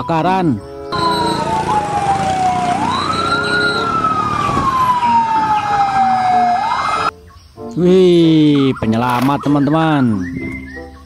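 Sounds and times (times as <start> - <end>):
fainter sirens: 0.9 - 7.1
fire truck siren wailing: 0.9 - 7.1.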